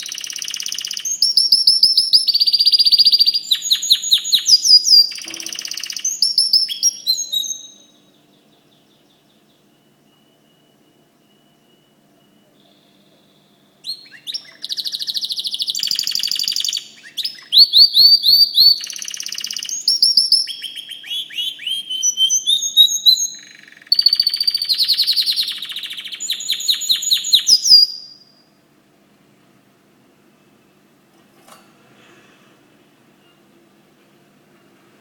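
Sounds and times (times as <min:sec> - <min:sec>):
canary singing trills: 0:00.0 - 0:28.6.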